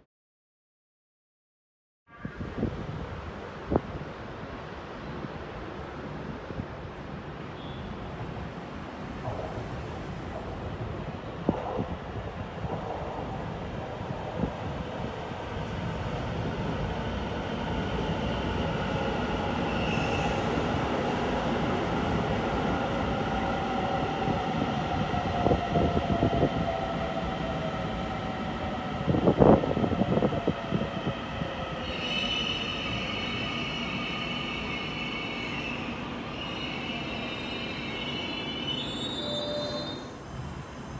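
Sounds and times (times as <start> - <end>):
high-pitched brake squeal: 19.7 - 20.4, 31.8 - 40.9.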